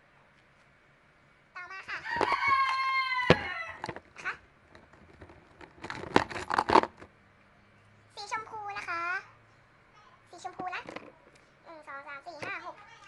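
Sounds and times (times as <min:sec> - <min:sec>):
small objects clattering and rustling: 0:02.1 - 0:07.1, 0:10.6 - 0:11.4
girl's voice: 0:08.2 - 0:09.4, 0:10.0 - 0:13.0.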